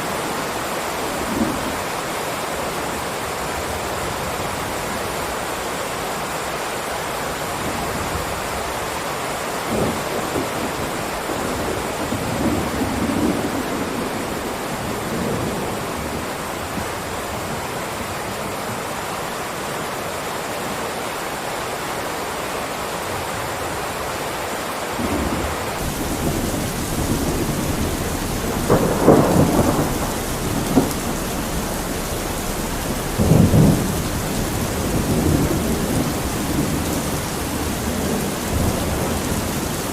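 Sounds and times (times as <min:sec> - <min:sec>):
steady rain falling: 0:00.0 - 0:39.9
thunder rumbling: 0:25.0 - 0:39.9.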